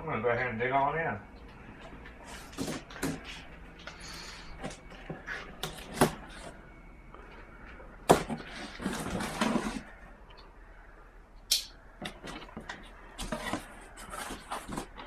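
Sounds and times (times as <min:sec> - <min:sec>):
cardboard box rustling: 0:08.2 - 0:10.0, 0:12.2 - 0:15.0.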